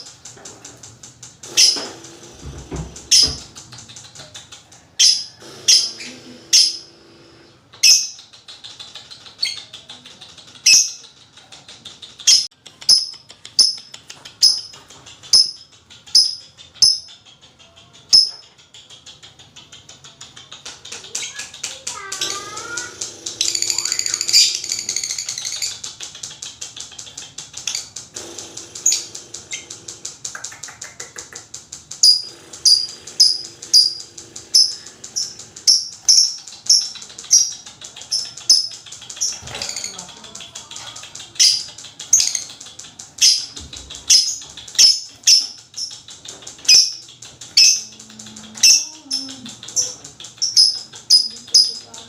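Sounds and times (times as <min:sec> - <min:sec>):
lovebird calling: 0:01.4 - 0:04.3, 0:05.0 - 0:08.4, 0:20.6 - 0:26.0, 0:27.1 - 0:31.3, 0:32.0 - 0:52.0.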